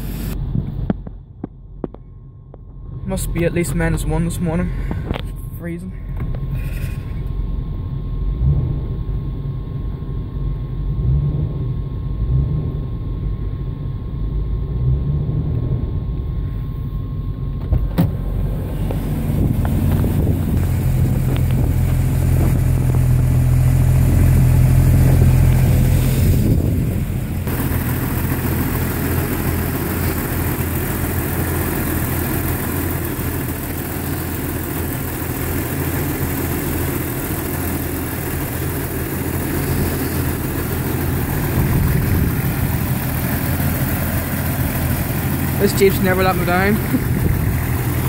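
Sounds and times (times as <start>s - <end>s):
car engine fast idle: 27.4s - 48.0s.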